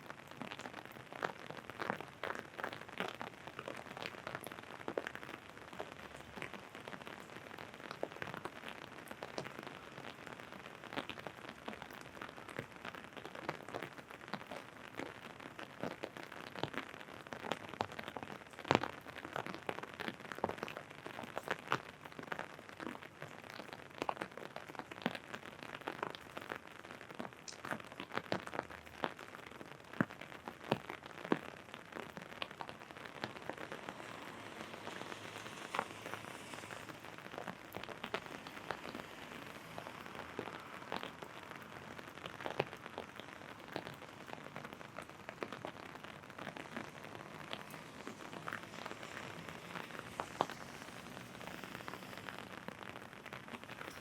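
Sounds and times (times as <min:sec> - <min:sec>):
rain falling: 0:00.0 - 0:54.0
raindrops tapping on umbrella: 0:00.0 - 0:54.0.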